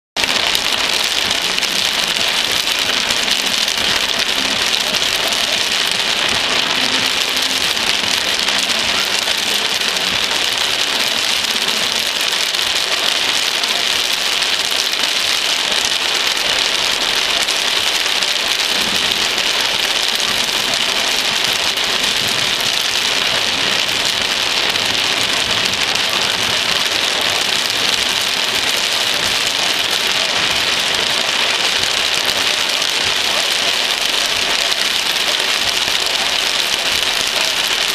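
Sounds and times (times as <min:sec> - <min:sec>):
heavy rain pouring: 0:00.2 - 0:37.9.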